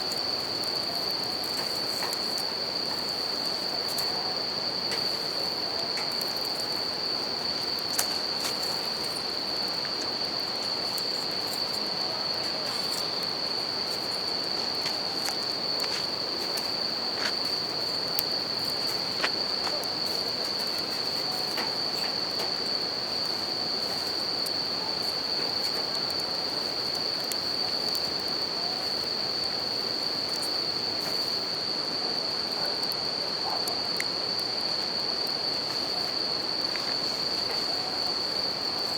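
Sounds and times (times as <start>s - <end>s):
campfire crackling and popping: 0.0s - 30.5s
crickets trilling: 0.0s - 38.9s.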